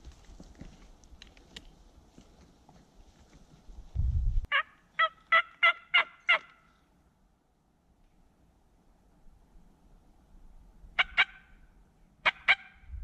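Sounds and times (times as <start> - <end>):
turkey yelps: 4.5 - 6.6, 11.0 - 11.6, 12.2 - 12.8.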